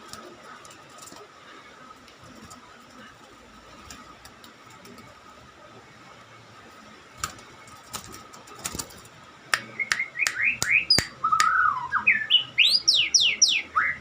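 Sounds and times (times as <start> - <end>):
bird sharp clicks: 9.6 - 11.6
bird whistling song: 9.7 - 14.0.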